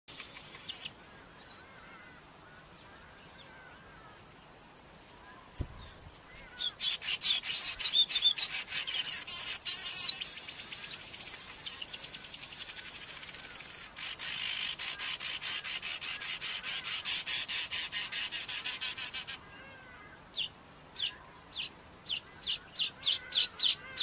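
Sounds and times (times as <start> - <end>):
bird singing buzzy chatter: 0.1 - 1.6, 5.0 - 19.4
faint distant twittering: 0.1 - 4.2, 5.0 - 16.4.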